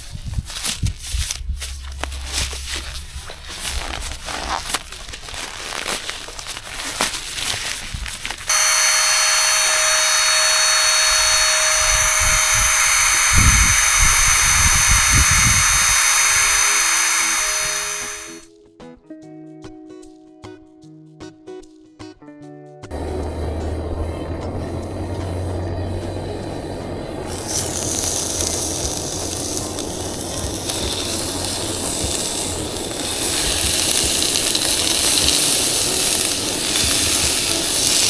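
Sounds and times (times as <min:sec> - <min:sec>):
camping gear clattering: 0:00.0 - 0:08.5
loud steady whirring: 0:07.2 - 0:18.4, 0:22.9 - 0:38.0.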